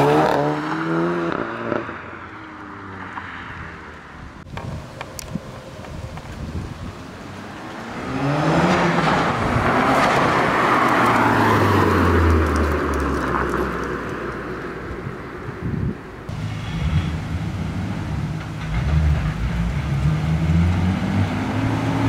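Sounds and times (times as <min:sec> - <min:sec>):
car engine accelerating hard: 0:16.3 - 0:22.0.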